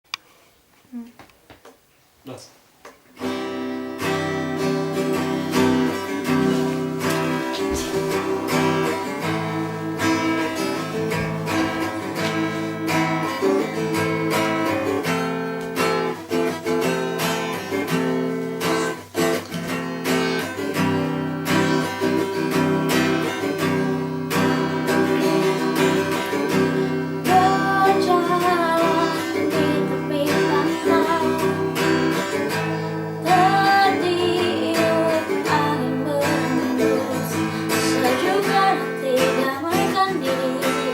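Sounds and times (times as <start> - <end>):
acoustic guitar strumming: 3.2 - 40.9
person singing: 6.6 - 9.3, 24.9 - 40.9.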